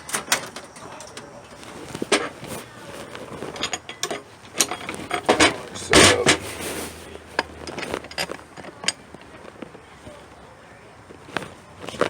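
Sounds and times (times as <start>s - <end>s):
metal clicks and knocks: 1.9s - 6.4s, 7.4s - 9.5s.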